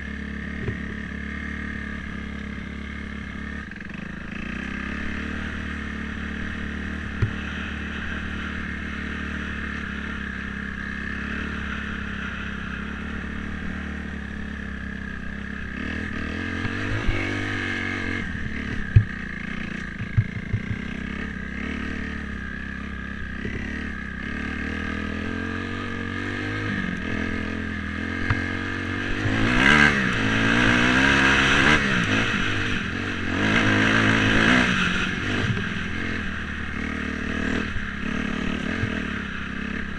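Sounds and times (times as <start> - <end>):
dirt bike engine revving: 0.0 - 39.9
sharp knocks: 20.0 - 20.9.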